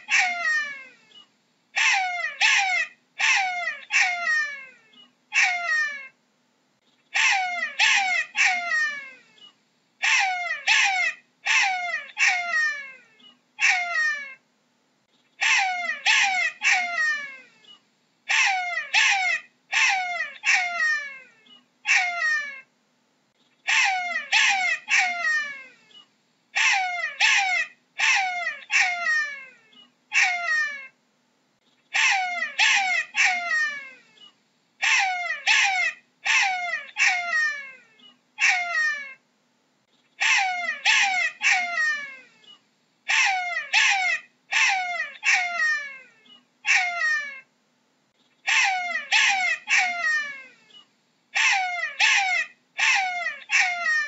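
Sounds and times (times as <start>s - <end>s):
jackal yelping wails: 0.0s - 1.0s, 1.8s - 6.2s, 7.1s - 9.3s, 10.0s - 14.4s, 15.4s - 17.6s, 18.3s - 22.7s, 23.6s - 31.0s, 31.9s - 39.2s, 40.2s - 47.5s, 48.4s - 54.0s.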